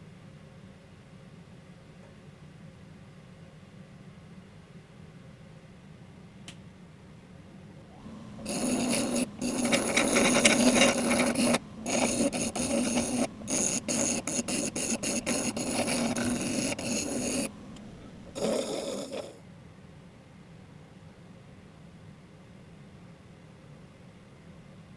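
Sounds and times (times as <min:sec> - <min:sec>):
grinder wheel grinding metal: 0:08.0 - 0:19.4.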